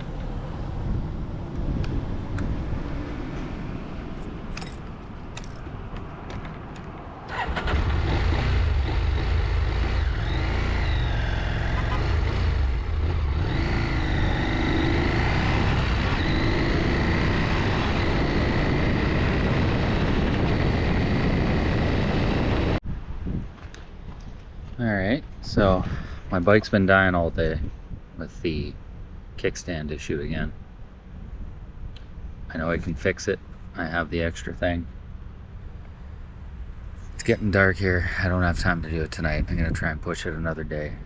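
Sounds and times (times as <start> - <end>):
motorcycle engine running: 7.4 - 22.8.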